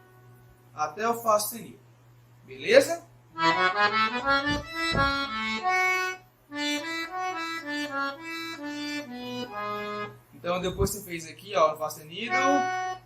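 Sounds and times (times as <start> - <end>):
accordion playing slow melody: 0.0 - 0.7, 3.3 - 10.9, 12.3 - 13.0.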